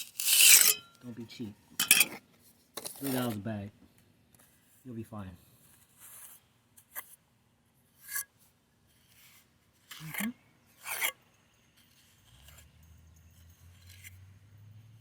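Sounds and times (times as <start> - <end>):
tool scraping wet concrete: 0.0 - 1.0, 2.8 - 3.4, 9.8 - 11.2.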